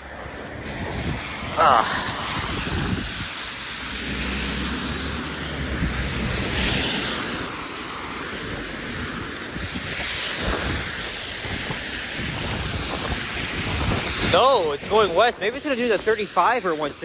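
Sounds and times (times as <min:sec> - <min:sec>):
vehicle engine hum: 0:00.0 - 0:10.1
tyre hiss on snowy road: 0:00.0 - 0:17.0.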